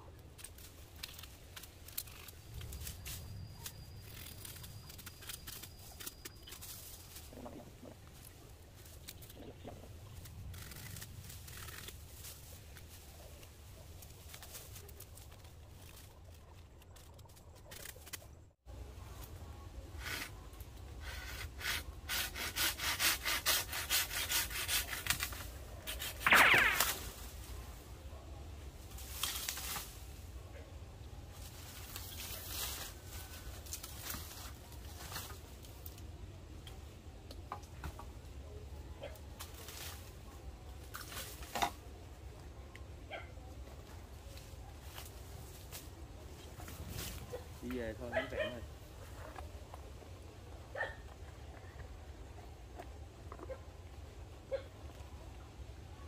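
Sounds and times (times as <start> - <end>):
bamboo and dry leaves rustling: 0.0 - 56.0
stem snapping: 0.3 - 6.8
saw cutting bamboo: 20.0 - 20.4, 21.0 - 26.8.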